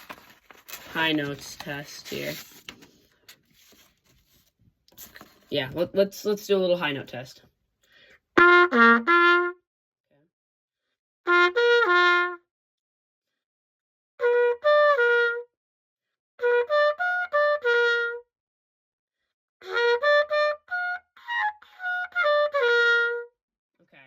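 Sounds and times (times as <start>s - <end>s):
cornet playing notes: 8.4s - 9.6s, 11.3s - 12.4s.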